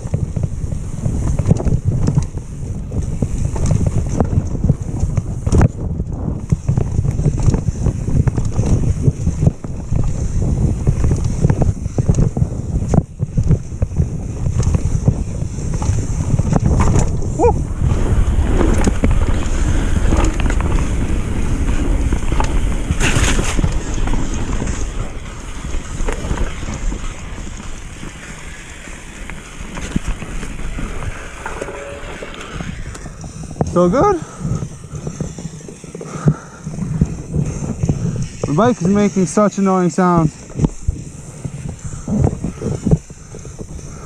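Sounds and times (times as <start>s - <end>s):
steady rumble: 0.0s - 44.0s
wind buffeting microphone: 0.0s - 44.0s
bike frame clattering: 14.5s - 39.4s.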